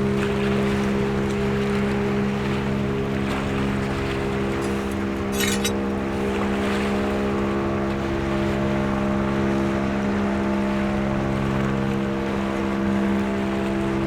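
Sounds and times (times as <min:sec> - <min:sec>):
engine humming steadily: 0:00.0 - 0:09.4.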